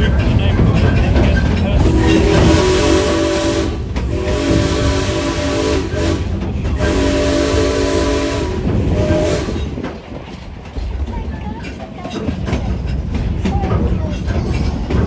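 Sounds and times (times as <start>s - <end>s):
running train rumble: 0.0s - 15.0s
steam whistle chord: 1.9s - 9.6s.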